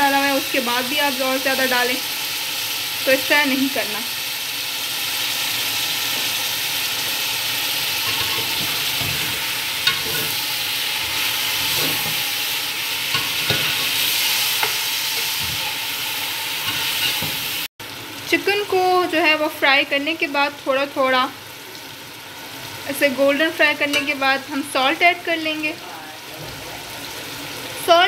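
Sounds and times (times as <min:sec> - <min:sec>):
chicken sizzling in oil: 0:00.0 - 0:28.0
spoon scraping a pot: 0:08.0 - 0:12.5, 0:13.1 - 0:15.9, 0:16.6 - 0:17.5.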